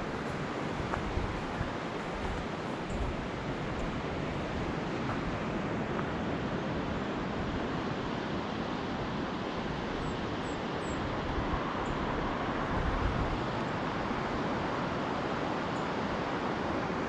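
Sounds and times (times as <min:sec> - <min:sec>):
road traffic: 0:00.0 - 0:06.2
surf roaring: 0:00.0 - 0:17.0.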